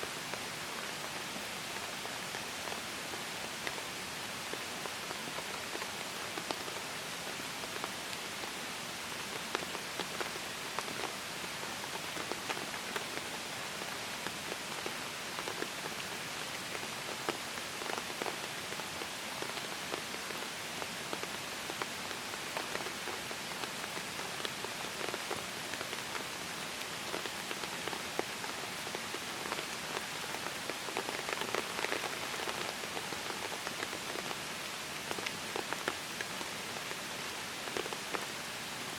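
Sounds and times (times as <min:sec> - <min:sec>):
steady rain falling: 0:00.0 - 0:38.9
raindrops ticking: 0:21.2 - 0:37.0.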